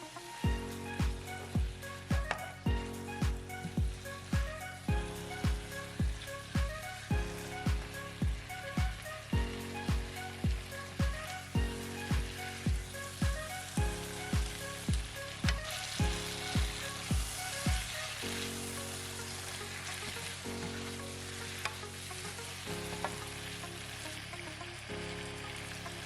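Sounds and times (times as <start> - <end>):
held music chords: 0.0 - 26.0
stir-fry sizzling in pan: 0.0 - 26.0
music with bass beat: 0.5 - 18.2.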